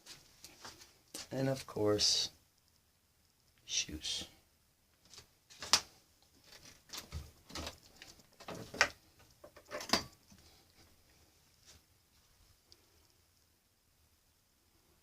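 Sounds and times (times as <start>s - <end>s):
faint handling sounds: 0.0s - 1.6s, 4.9s - 13.5s.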